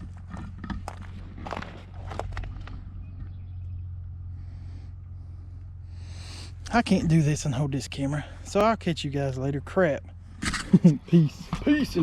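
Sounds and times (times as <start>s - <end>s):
low rumble: 0.0s - 8.5s.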